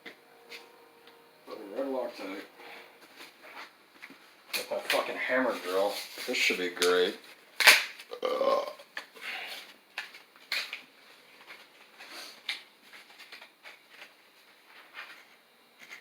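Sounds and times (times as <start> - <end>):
grunt-like vocal sound: 8.1 - 8.8.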